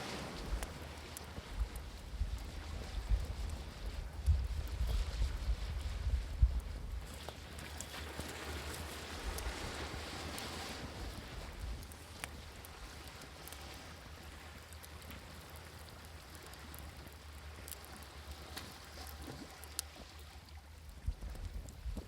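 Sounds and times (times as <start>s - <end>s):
sea waves: 0.0s - 1.6s, 7.0s - 20.8s
wood fire crackling: 0.0s - 22.0s.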